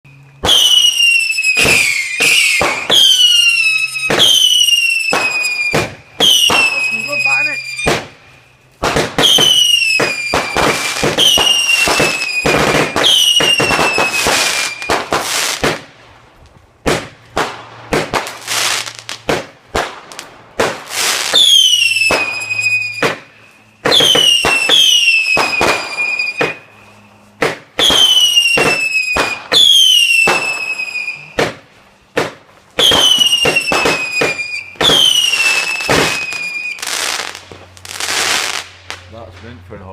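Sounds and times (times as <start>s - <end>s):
firework whistles falling in pitch: 0.1s - 15.8s, 21.0s - 31.5s, 32.8s - 38.6s
firework bangs: 0.4s - 39.9s
small firework pops: 8.8s - 18.4s, 19.0s - 22.4s, 23.0s - 26.6s, 27.4s - 30.7s, 31.4s - 36.5s.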